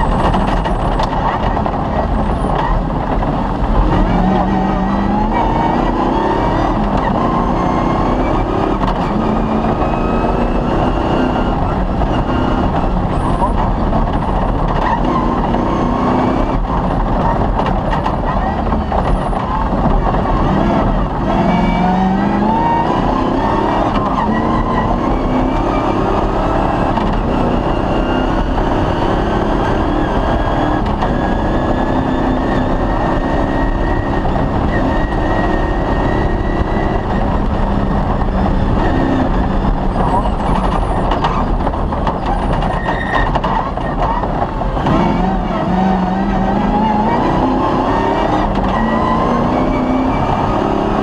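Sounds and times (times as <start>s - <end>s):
rally car engine under load: 0.0s - 51.0s
tyre and chassis rumble: 0.0s - 51.0s.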